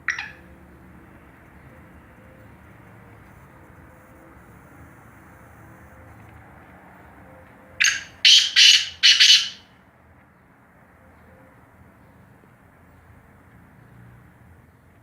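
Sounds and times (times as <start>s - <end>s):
bird calling harsh notes: 0.0s - 0.4s, 7.8s - 9.7s.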